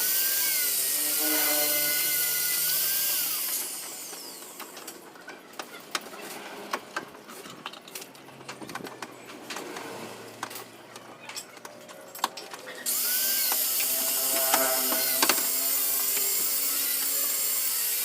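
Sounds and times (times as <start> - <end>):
power tool whining: 0.0 - 4.9, 12.8 - 18.0.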